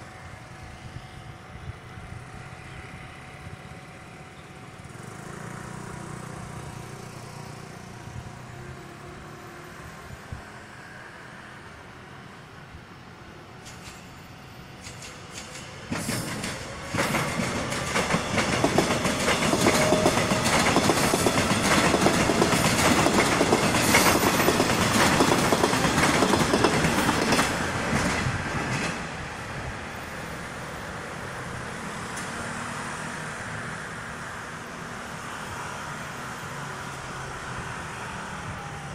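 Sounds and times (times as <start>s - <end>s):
train wheels clattering on rails: 13.6s - 14.2s, 14.8s - 29.2s.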